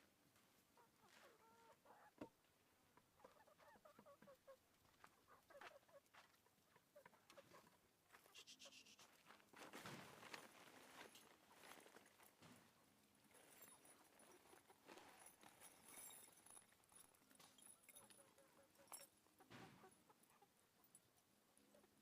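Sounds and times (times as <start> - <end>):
faint chickens clucking: 0.4 - 10.1, 18.0 - 22.0.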